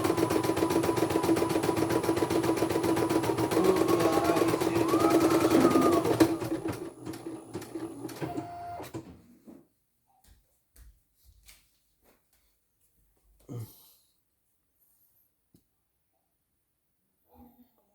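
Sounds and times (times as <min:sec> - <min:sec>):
embroidery machine stitching: 0:00.0 - 0:09.1.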